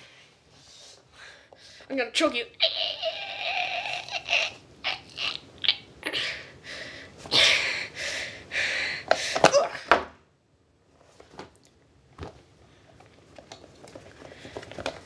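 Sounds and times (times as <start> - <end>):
person making choking noises: 2.6 - 6.3.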